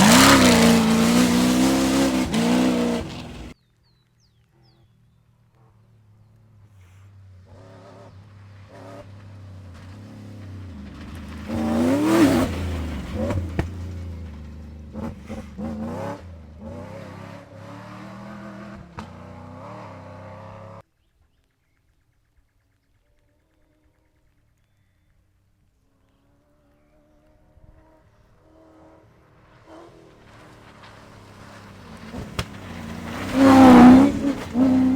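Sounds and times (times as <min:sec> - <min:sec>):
rally car engine passing: 0:00.0 - 0:03.6, 0:06.9 - 0:20.8, 0:27.0 - 0:34.9.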